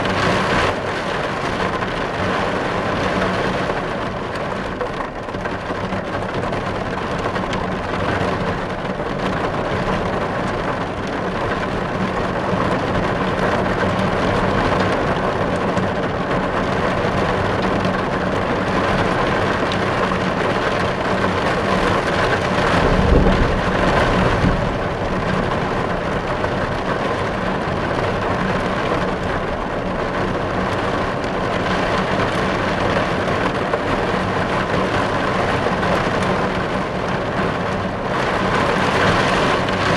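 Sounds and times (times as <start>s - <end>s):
heavy rain on car roof: 0.0s - 39.9s
low rumble: 22.2s - 27.6s.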